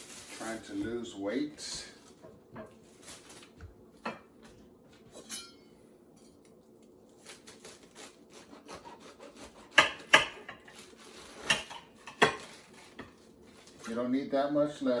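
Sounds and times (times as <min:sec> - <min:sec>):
knife scraping through lettuce: 0:07.1 - 0:14.0
knife chopping: 0:07.2 - 0:13.9.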